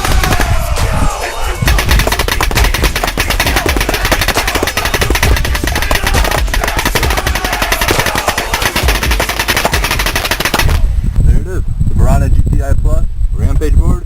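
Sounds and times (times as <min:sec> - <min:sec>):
paintball marker rapid firing: 0:00.0 - 0:00.6, 0:01.6 - 0:10.9.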